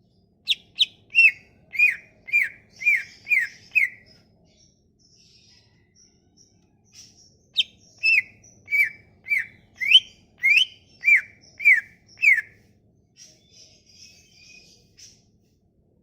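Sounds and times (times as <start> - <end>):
faint high chirps: 0.0 - 15.6
songbird whistling: 0.5 - 4.2, 7.0 - 12.6.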